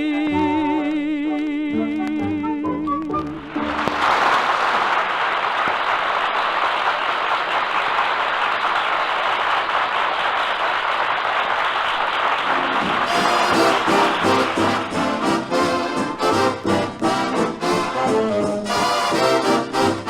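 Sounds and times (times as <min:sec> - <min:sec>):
brass-led orchestra playing: 0:03.1 - 0:04.8, 0:12.4 - 0:20.0
audience applauding: 0:03.3 - 0:20.0.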